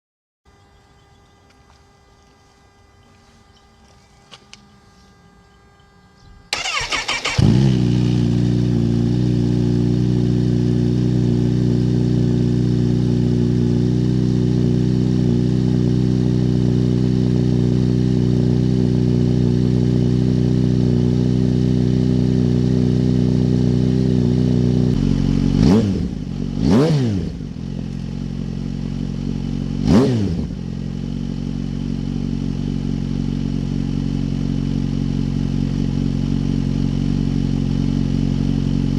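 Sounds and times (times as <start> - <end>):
motorcycle engine idling: 6.2 - 38.9
starter motor cranking: 6.5 - 7.7
motorcycle engine revving: 6.5 - 38.9.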